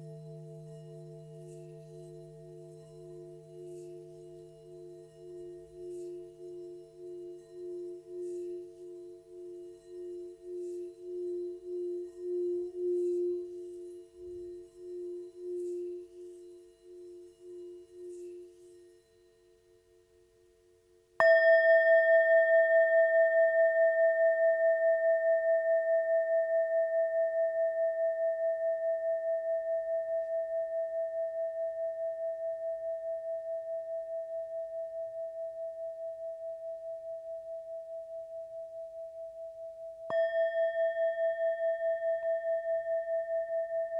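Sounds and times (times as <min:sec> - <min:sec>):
low singing bowl ringing: 0:00.0 - 0:19.5, 0:21.2 - 0:43.9
high singing bowl struck: 0:21.2 - 0:27.8, 0:40.1 - 0:43.9.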